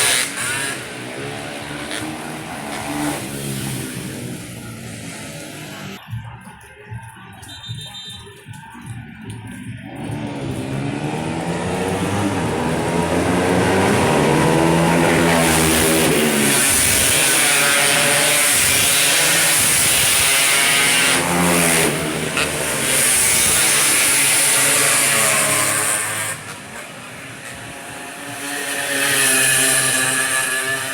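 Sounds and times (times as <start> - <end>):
motorcycle engines revving: 0.0 - 30.9.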